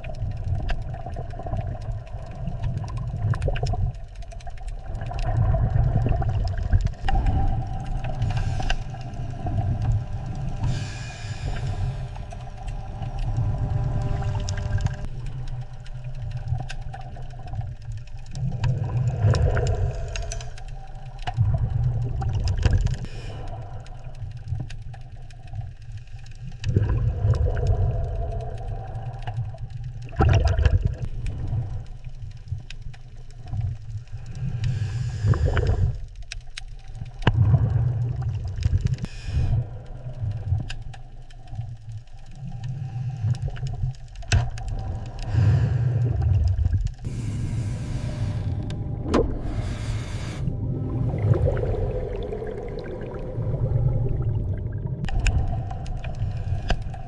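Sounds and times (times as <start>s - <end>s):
watery rumble with gurgling surges: 0.0s - 57.0s.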